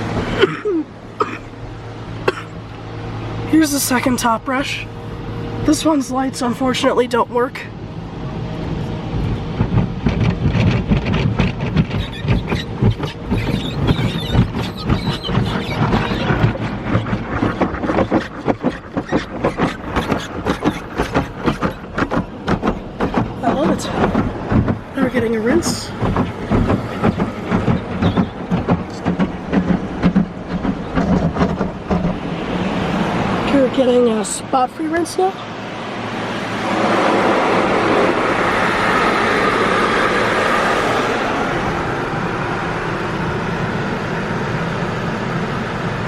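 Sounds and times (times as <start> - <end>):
car wash brush slapping: 9.0 - 41.9
foam squeaking on car body: 9.3 - 33.3.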